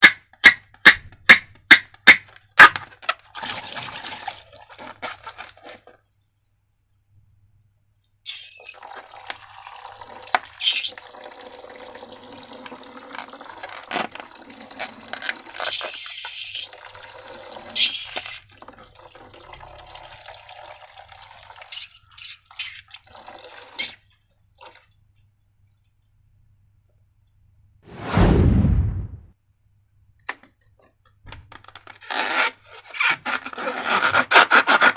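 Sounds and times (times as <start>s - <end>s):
liquid pouring into container: 8.3s - 21.8s, 22.9s - 25.2s
loud thump: 27.9s - 29.3s.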